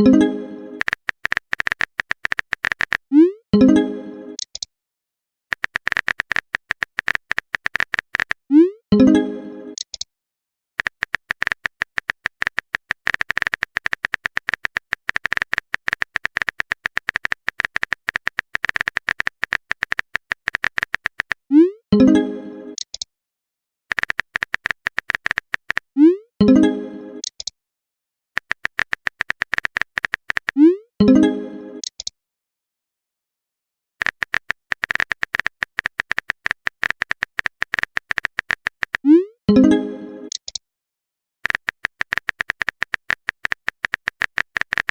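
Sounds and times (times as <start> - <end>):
keyboard typing clicks: 0.8 - 3.1, 4.4 - 4.7, 5.5 - 8.4, 9.8 - 10.1, 10.8 - 21.4, 22.8 - 23.1, 23.9 - 25.9, 27.2 - 27.5, 28.4 - 30.7, 31.8 - 32.1, 34.0 - 39.7, 40.3 - 40.6, 41.4 - 44.9.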